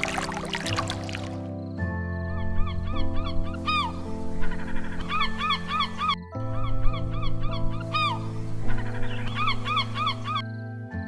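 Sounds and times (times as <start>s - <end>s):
background music with sustained tones: 0.0s - 11.0s.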